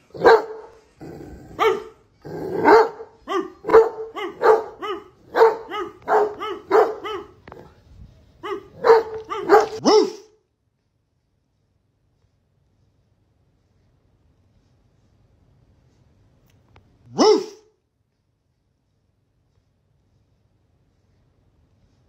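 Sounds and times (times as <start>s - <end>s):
dog barking: 0.1s - 0.8s, 1.6s - 7.7s, 8.4s - 10.4s, 17.1s - 17.7s.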